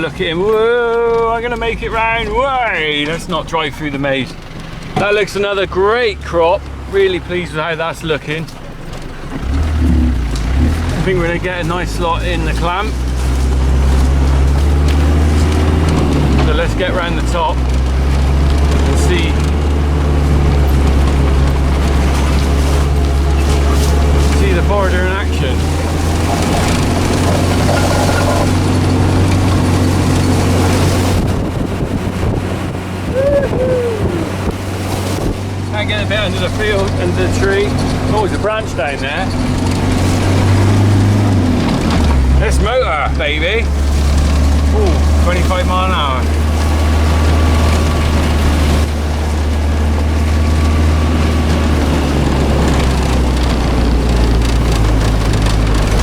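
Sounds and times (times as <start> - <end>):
driving noise: 0.0 - 56.0
road noise: 0.0 - 56.0
vehicle engine droning: 0.0 - 56.0
rushing wind: 12.2 - 42.5.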